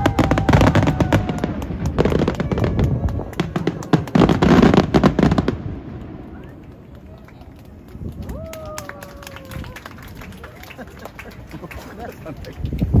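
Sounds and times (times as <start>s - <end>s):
fireworks bangs and crackles: 0.0s - 8.8s.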